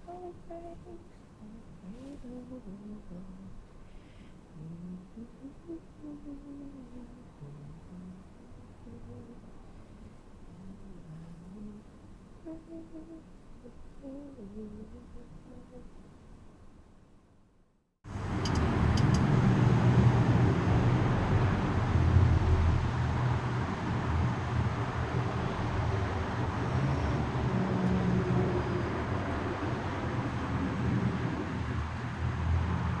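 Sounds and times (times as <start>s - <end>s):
steady low rumbling noise: 0.0s - 17.0s, 18.1s - 33.0s
faint clicks: 18.4s - 19.3s.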